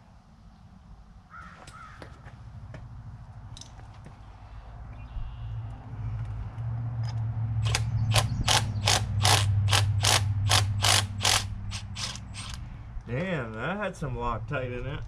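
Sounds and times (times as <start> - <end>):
ratchet wrench clicking: 7.0 - 12.6.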